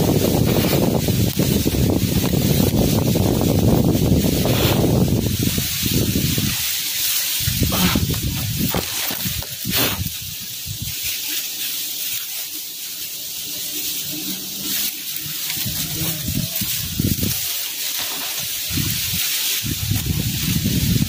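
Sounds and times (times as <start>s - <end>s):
wind buffeting microphone: 0.0s - 6.7s, 7.4s - 11.0s, 15.6s - 17.5s, 18.4s - 21.0s
strong wind through trees: 0.0s - 21.0s.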